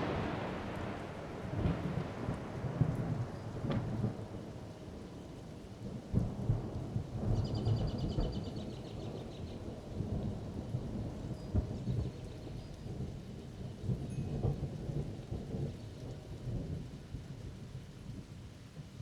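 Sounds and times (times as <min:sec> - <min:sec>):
thunder rumbling: 0:00.0 - 0:05.2
steady rain: 0:00.0 - 0:19.0.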